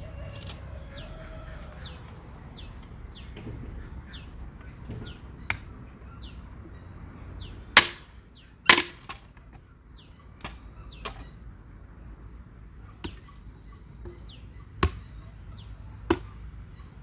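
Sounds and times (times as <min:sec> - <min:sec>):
bird falling call: 0:00.0 - 0:06.3
blade chopping wood: 0:07.8 - 0:08.1, 0:08.7 - 0:09.2.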